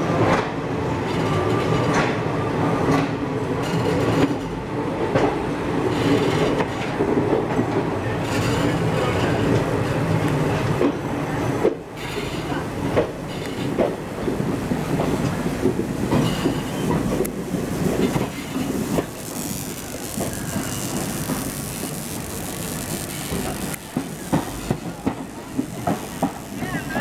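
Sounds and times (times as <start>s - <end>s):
train wheels rumbling: 0.2s - 27.0s
wheels clicking over rail joints: 11.6s - 27.0s.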